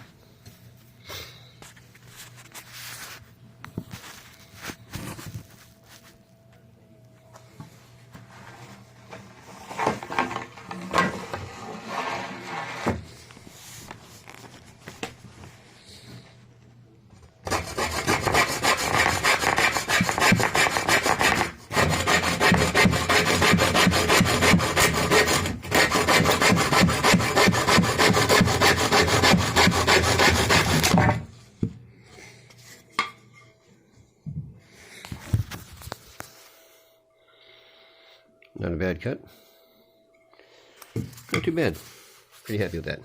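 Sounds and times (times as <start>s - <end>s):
hand saw cutting wood: 17.4s - 31.2s.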